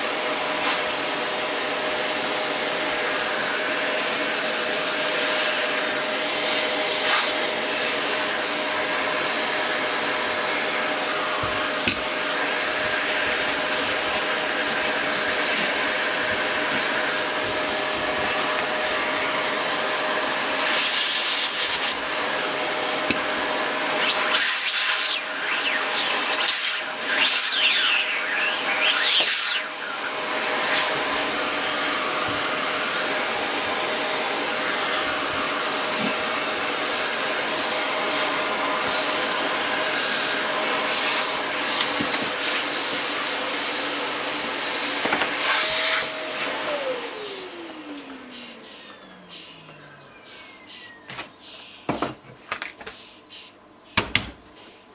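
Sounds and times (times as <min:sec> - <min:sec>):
fan whooshing: 0:07.0 - 0:42.8.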